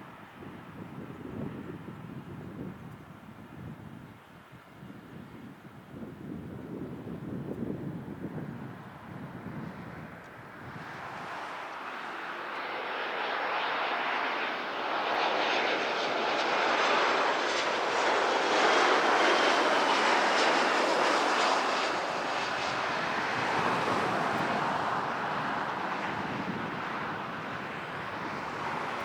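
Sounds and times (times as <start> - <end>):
jet airliner passing: 6.5 - 29.0.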